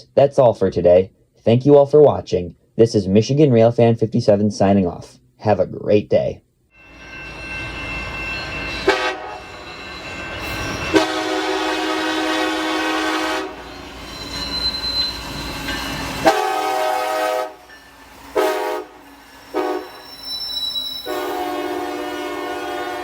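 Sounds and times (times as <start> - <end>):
low rail rumble: 6.8 - 23.0
train horn blasts: 8.8 - 9.5, 10.8 - 13.7, 16.2 - 17.7, 18.3 - 20.0, 21.0 - 23.0.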